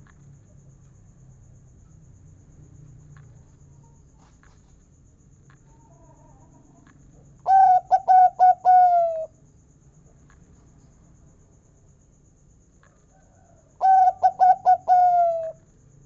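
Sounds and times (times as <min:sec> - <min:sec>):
dove cooing: 0:07.5 - 0:09.3, 0:13.8 - 0:15.6.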